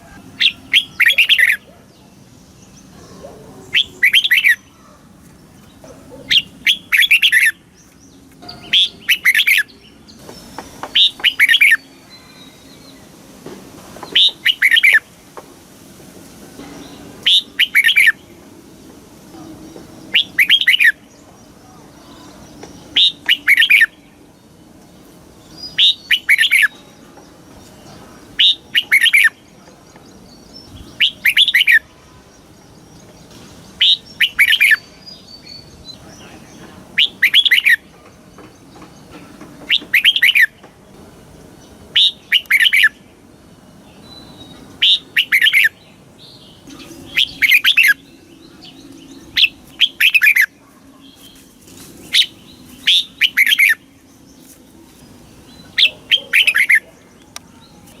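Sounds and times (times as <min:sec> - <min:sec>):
bird singing warbling phrases: 0:00.0 - 0:05.0, 0:05.6 - 0:13.1, 0:14.0 - 0:15.1, 0:16.6 - 0:18.4, 0:19.2 - 0:58.0.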